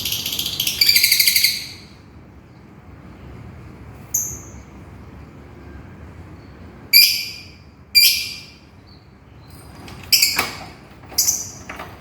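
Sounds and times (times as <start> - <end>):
lovebird shrill calls: 0.0 - 1.8, 6.9 - 8.6.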